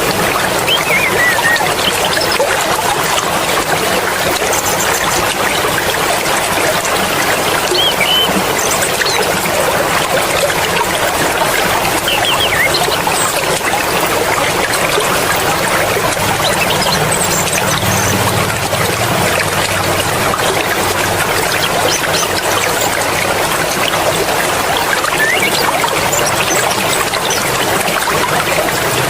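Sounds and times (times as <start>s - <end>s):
stream water rushing over rocks: 0.0s - 29.0s
faint high chirps: 7.7s - 9.2s.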